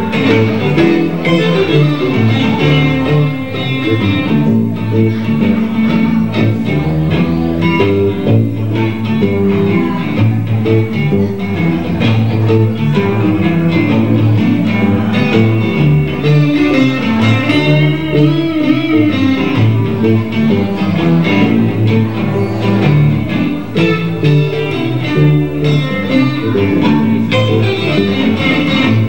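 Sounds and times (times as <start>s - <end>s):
blues band playing: 0.0s - 29.0s
electric guitar: 0.0s - 29.0s.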